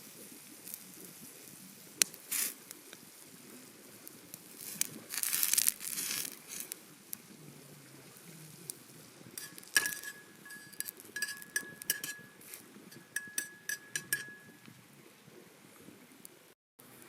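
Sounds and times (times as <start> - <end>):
cookware clinking together: 9.4 - 14.6.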